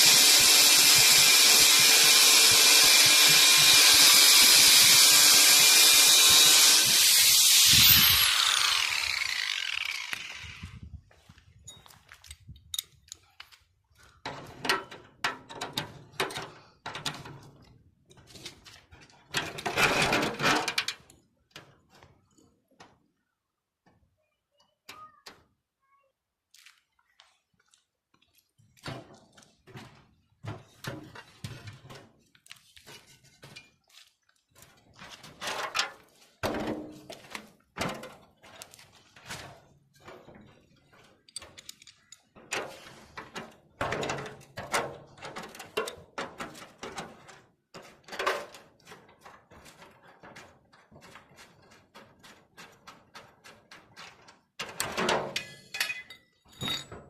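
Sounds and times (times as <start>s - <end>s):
knocks and clatter of metal repair: 14.2s - 22.0s, 28.8s - 32.2s, 35.0s - 57.0s.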